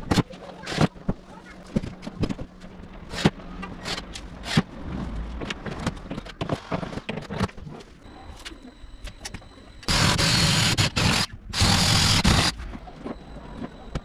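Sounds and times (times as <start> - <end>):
panels and hardware clicking and knocking: 0.0 - 7.9.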